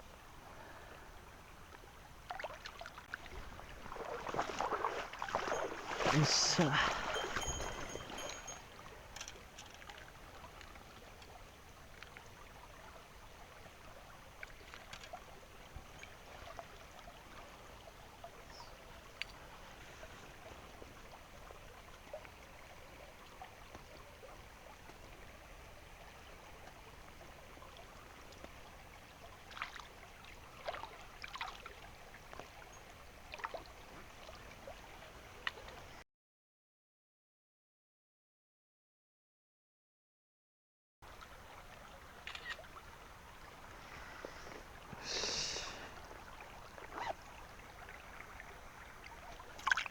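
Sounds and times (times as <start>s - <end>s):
stream water rushing: 1.4s - 36.0s, 41.1s - 49.9s.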